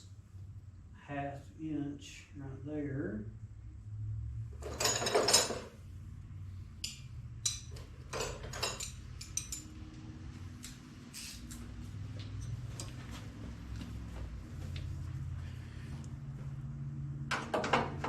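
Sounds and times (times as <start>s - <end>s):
steady low hum: 0.0s - 18.0s
hand tools clinking on metal: 4.6s - 5.7s, 6.8s - 9.8s.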